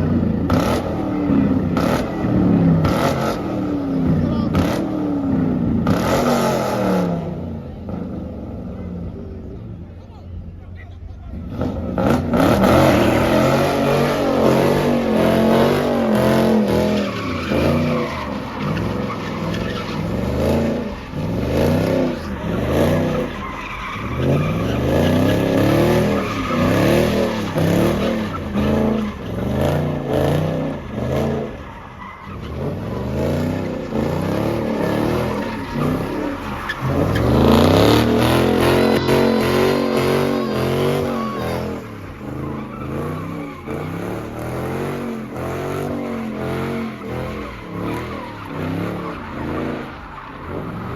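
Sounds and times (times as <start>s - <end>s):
car engine revving: 0.0s - 10.4s, 11.1s - 50.9s
tyres squealing: 12.5s - 50.9s.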